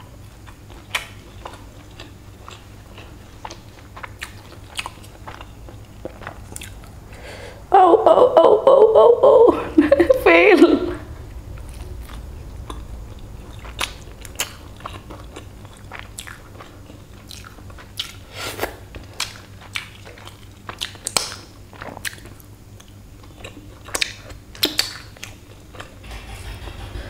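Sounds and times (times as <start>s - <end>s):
crunching fried chicken: 0.1s - 7.0s, 11.6s - 26.0s
wet chewing: 0.4s - 7.0s, 11.6s - 18.2s, 18.9s - 25.9s.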